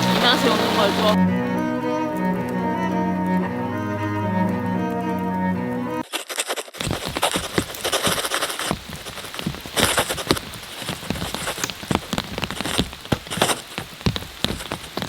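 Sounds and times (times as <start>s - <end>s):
heavy rain falling: 0.0s - 1.2s, 6.8s - 15.0s
cello music: 0.0s - 6.0s.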